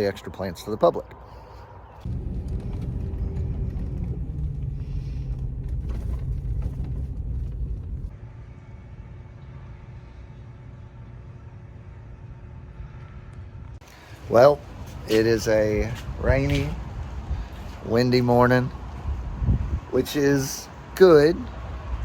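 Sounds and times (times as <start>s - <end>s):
quiet steady hum: 0.0s - 17.6s
vehicle engine rumble: 1.1s - 22.0s.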